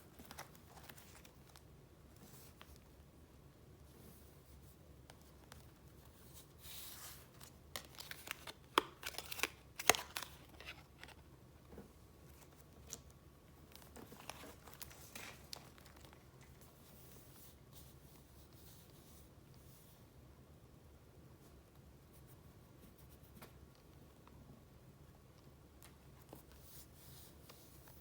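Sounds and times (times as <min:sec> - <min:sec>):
paper rustling and crinkling: 0:00.1 - 0:02.8, 0:05.1 - 0:11.3, 0:13.7 - 0:17.6.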